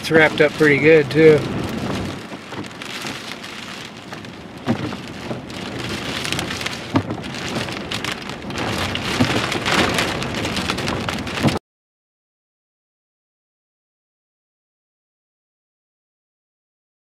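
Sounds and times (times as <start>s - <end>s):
heavy rain pelting down: 0.0s - 11.6s.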